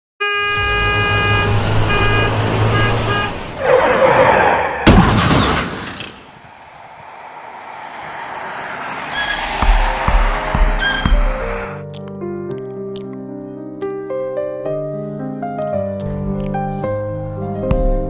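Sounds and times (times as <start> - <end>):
truck horn blaring: 0.2 - 4.0, 10.7 - 11.8
sharp bang: 0.6 - 3.1
rushing whoosh: 6.1 - 11.8.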